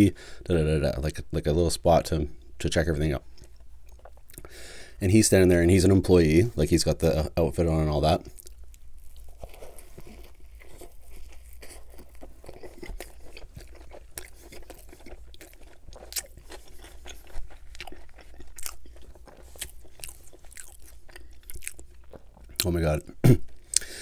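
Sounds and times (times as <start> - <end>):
person chewing food: 3.3 - 4.5, 8.2 - 24.0.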